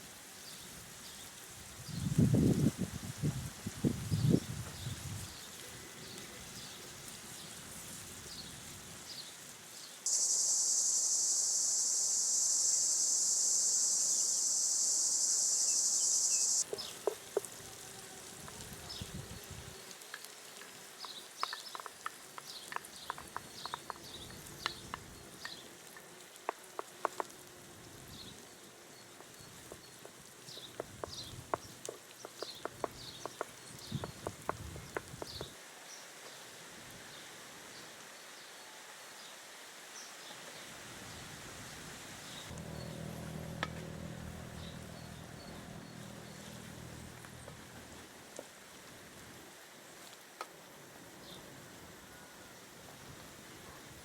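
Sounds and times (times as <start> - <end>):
high insect buzz: 10.0 - 35.6.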